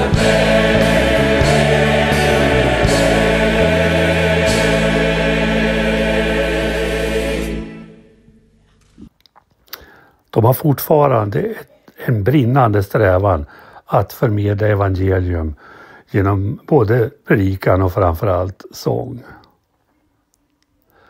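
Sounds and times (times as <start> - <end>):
gospel group singing: 0.0 - 8.4
band sustained chord: 0.0 - 8.6
bass line: 0.0 - 8.6.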